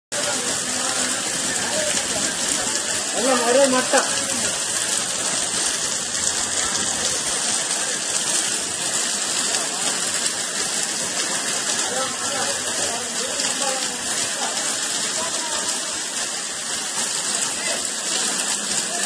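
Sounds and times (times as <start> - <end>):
heavy rain on flooded road: 0.1 - 19.0.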